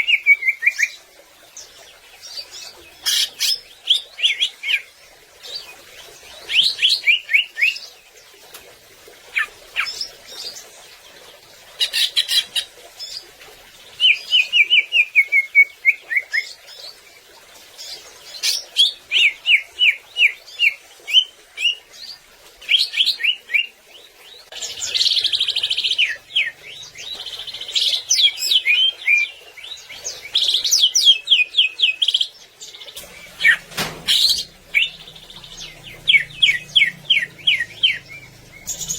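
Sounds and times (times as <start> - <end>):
bird singing chirps and trills: 17.8 - 38.9.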